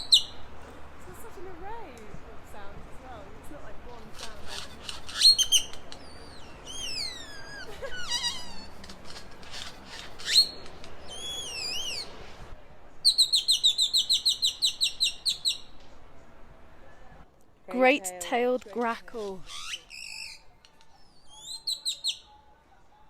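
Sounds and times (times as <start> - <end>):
bird calling whistled notes: 0.0 - 0.4, 4.2 - 8.7, 9.6 - 12.1, 13.0 - 15.7, 19.4 - 22.3.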